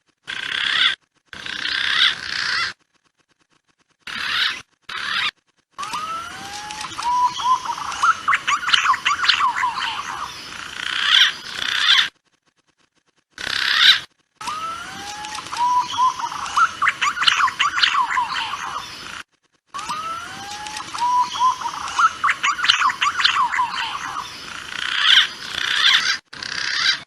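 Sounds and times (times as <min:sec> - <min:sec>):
recorded pigeon call: 0:04.1 - 0:12.1, 0:13.4 - 0:19.2, 0:19.8 - 0:27.0.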